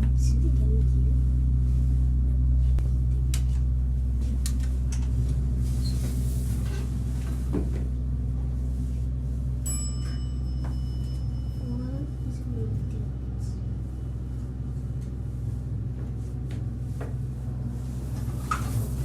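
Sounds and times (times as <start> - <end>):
elevator machine hum: 0.0 - 19.0
high ringing tone: 9.6 - 12.4.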